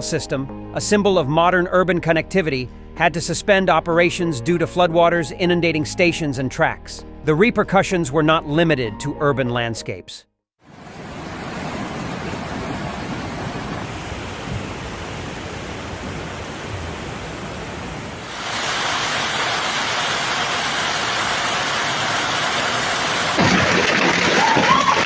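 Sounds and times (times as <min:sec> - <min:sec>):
rushing water: 0:10.6 - 0:25.0.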